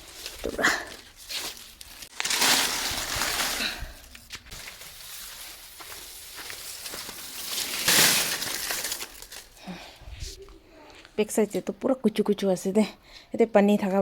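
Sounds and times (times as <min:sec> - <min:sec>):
dry vegetation rustling and crunching: 0:00.0 - 0:10.4.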